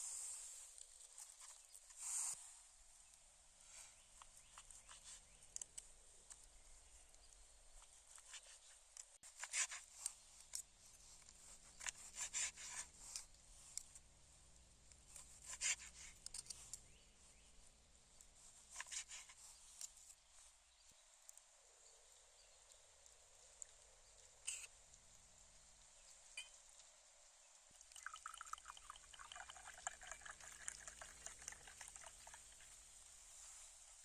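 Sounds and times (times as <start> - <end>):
faint rustling and scraping: 0.0 - 27.8, 30.2 - 34.0.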